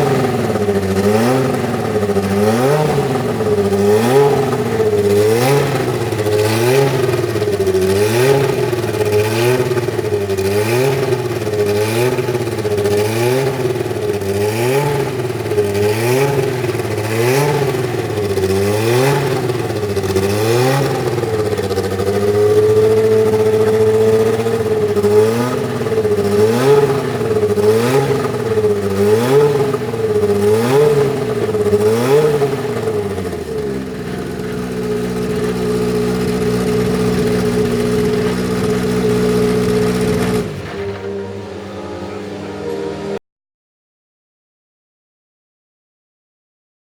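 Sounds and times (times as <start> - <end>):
racing car engine revving: 0.0 - 43.2.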